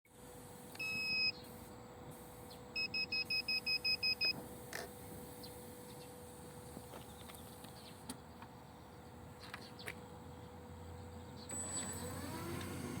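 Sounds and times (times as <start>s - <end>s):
electronic beeps: 0.8s - 1.4s, 2.8s - 4.4s.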